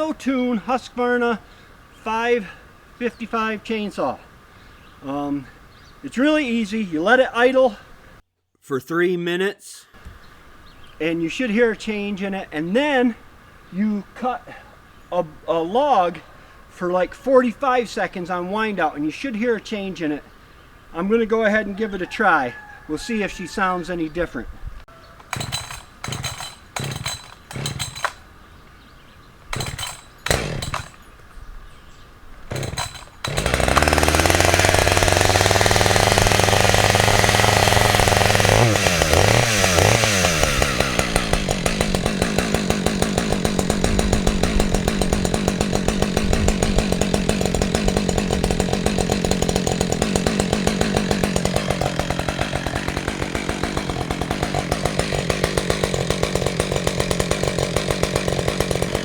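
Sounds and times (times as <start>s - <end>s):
chainsaw engine running: 25.2s - 28.3s, 29.5s - 31.1s, 32.5s - 59.0s
chainsaw pull cord: 25.2s - 28.3s, 29.5s - 31.1s, 32.4s - 59.0s.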